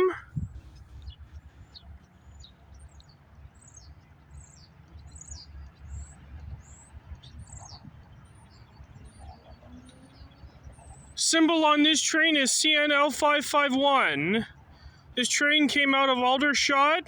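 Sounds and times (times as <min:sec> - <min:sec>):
small birds chirping: 0:00.0 - 0:17.0
steady low rumble: 0:00.2 - 0:09.0.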